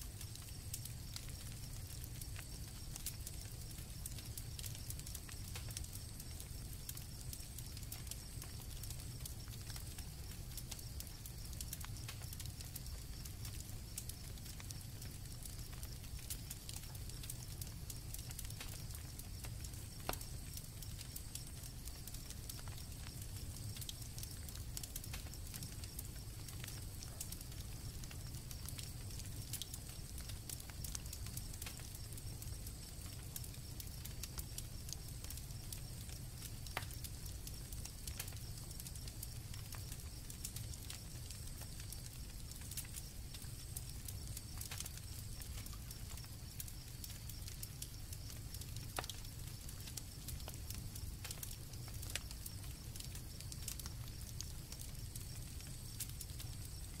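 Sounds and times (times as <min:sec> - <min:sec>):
campfire crackling and popping: 0:00.0 - 0:57.0
crickets trilling: 0:00.0 - 0:57.0.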